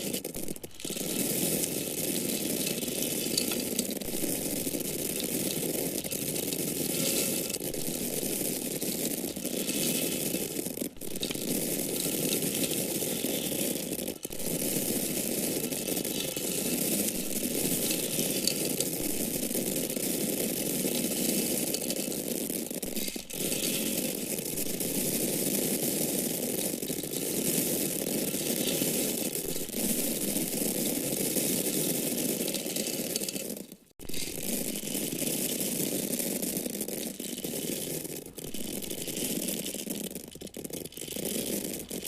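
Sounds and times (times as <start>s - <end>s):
dry grains pouring: 0.0s - 42.0s.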